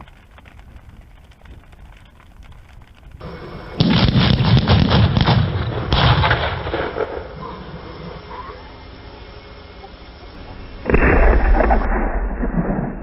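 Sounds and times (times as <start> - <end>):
firework bangs: 0.0 - 7.4
firework crackling: 0.0 - 8.2.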